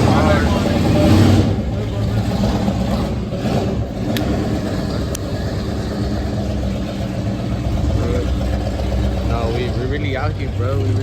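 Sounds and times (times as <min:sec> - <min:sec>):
truck and car engines rumbling: 0:00.0 - 0:11.0.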